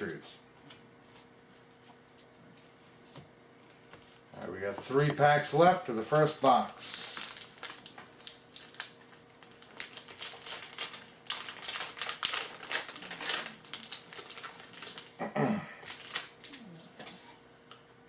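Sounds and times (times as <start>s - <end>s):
wrapper crinkling and tearing: 6.2s - 15.2s, 15.8s - 16.9s.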